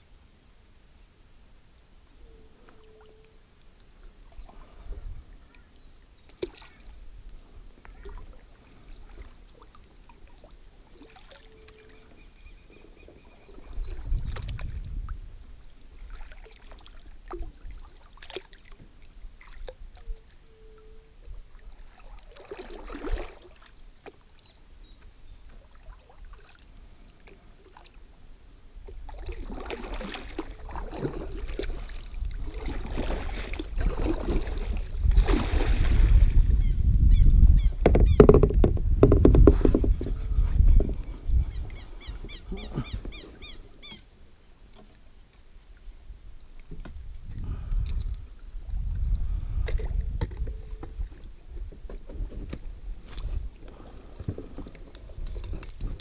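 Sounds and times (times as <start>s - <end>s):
paddle splashing in water: 4.2s - 7.2s, 7.8s - 20.3s, 21.2s - 24.6s, 25.4s - 28.2s, 28.8s - 36.6s
knocks against kayak hull: 37.8s - 41.0s.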